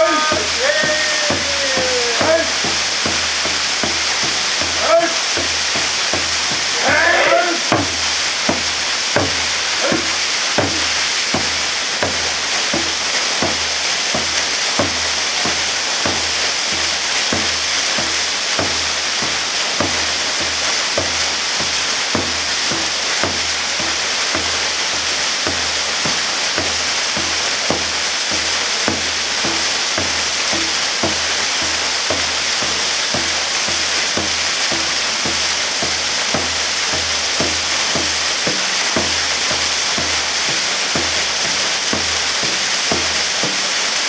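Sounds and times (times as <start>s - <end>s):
low knocks: 0.0s - 20.0s
waterfall rushing: 0.0s - 44.0s.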